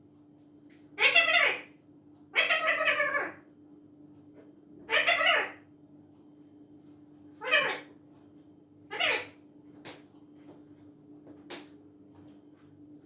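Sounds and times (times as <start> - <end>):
parrot calling: 1.0 - 1.8, 2.4 - 3.4, 4.9 - 5.6, 7.4 - 7.9, 8.9 - 9.4.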